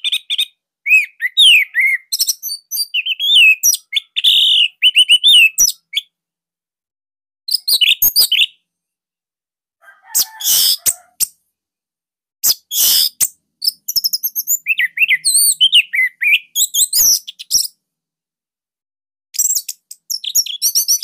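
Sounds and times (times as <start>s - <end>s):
bird whistled notes: 0.9s - 6.1s, 10.2s - 11.0s, 12.4s - 17.7s
bird harsh bursts: 10.1s - 11.1s, 12.4s - 13.2s.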